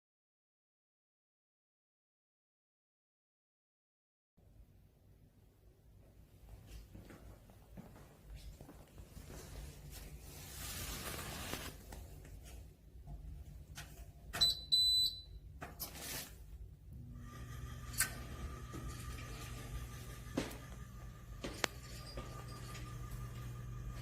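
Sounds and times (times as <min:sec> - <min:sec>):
steady machine hum: 0:16.7 - 0:24.0.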